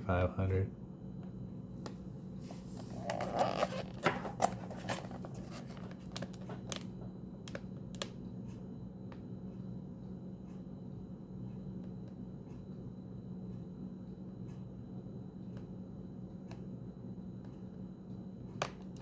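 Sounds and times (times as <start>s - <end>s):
low steady hum: 0.0s - 19.0s
plastic packaging crinkling: 2.5s - 7.6s.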